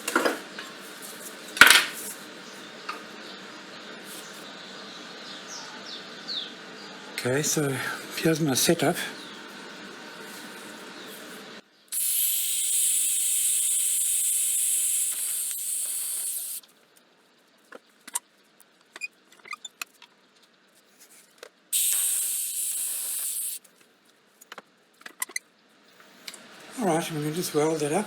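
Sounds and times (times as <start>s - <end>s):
hissing spray: 11.9s - 16.6s, 21.8s - 23.6s.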